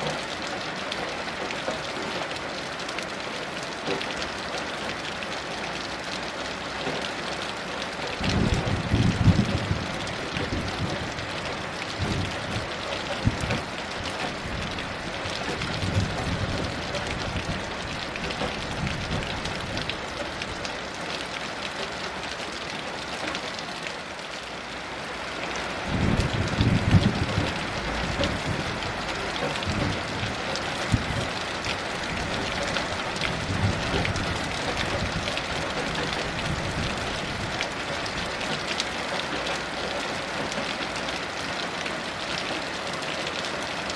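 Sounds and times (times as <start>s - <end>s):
heavy rain: 0.0s - 43.9s
distant thunder rumbling: 25.9s - 31.4s.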